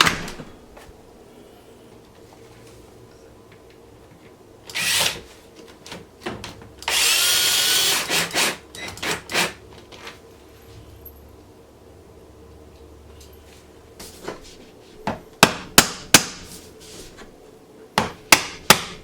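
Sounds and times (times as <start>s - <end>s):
power drill driving screws: 4.7s - 5.2s, 6.8s - 9.6s.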